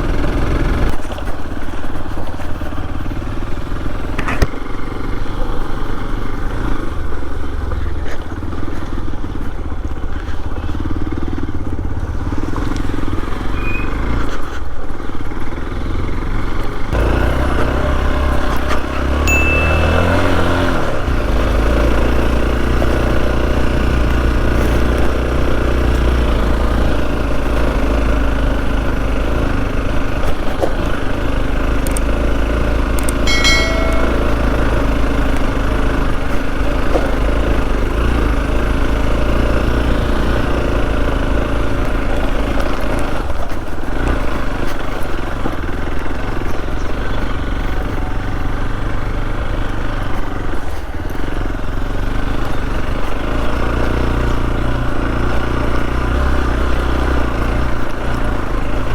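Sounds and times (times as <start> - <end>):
motorcycle engine running: 0.0 - 58.9
short pitched sound: 33.3 - 34.8.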